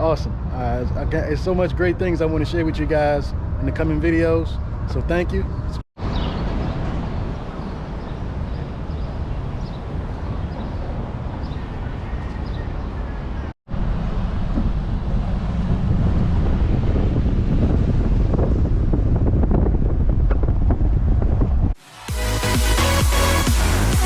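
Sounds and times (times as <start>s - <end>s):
low outdoor rumbling: 12.8s - 21.8s.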